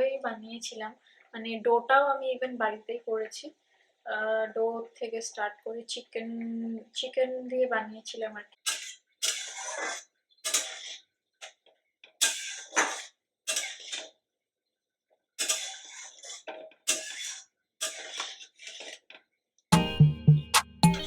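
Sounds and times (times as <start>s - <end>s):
utensils scraping and clattering: 8.7s - 11.0s, 12.2s - 14.1s, 15.4s - 19.2s.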